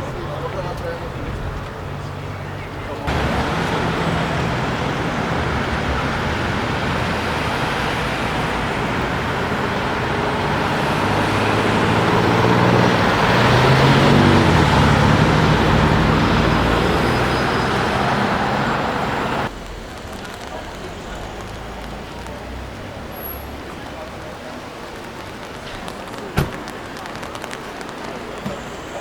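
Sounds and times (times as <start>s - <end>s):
city street traffic: 0.0s - 29.0s
car engine passing by: 3.0s - 19.5s.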